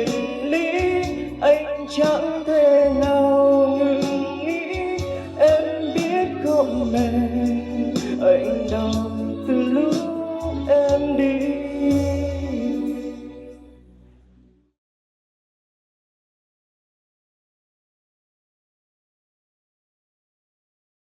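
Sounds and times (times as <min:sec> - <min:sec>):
pop ballad with singing: 0:00.0 - 0:13.8.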